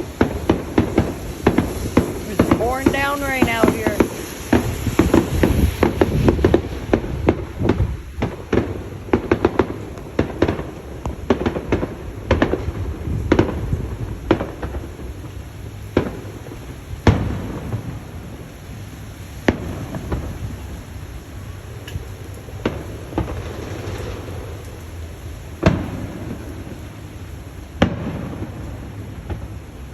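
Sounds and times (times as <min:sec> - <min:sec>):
fireworks cracking and banging: 0:00.0 - 0:29.9.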